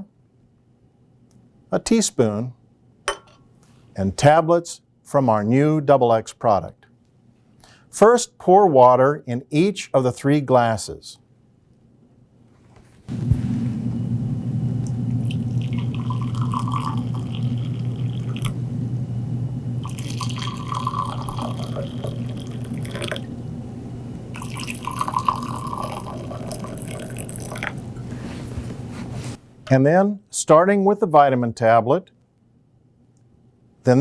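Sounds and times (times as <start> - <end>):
hot water pouring into glasses: 14.9 - 18.6, 19.8 - 23.4, 24.3 - 28.0.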